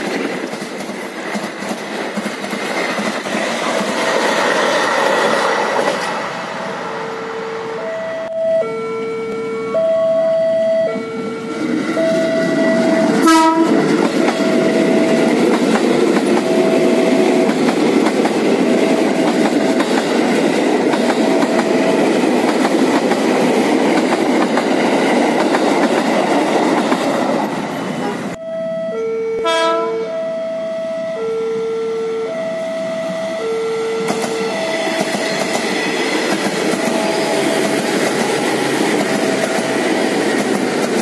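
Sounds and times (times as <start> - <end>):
train wheels clattering: 0.0 - 6.3, 13.0 - 28.3, 34.1 - 41.0
two-tone crossing chime: 6.9 - 11.1
train horn blast: 10.8 - 13.9, 28.0 - 35.0.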